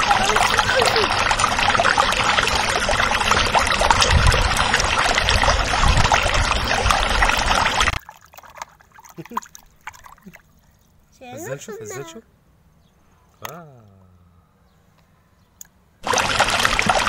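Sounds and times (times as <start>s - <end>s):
water sloshing in plastic bucket: 0.1s - 10.9s.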